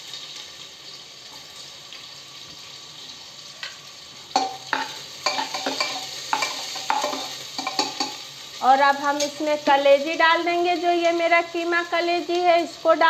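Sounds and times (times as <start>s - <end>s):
onion sizzling in oil: 0.0s - 13.0s
utensil clinking against pot: 4.4s - 8.2s.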